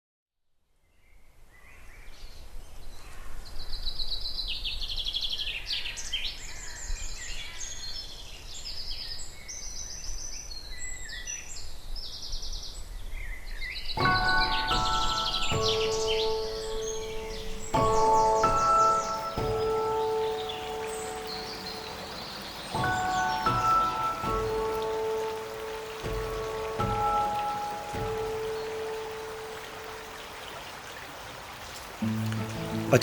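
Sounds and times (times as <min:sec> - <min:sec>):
songbirds trilling and whistling: 0:12.4 - 0:31.3.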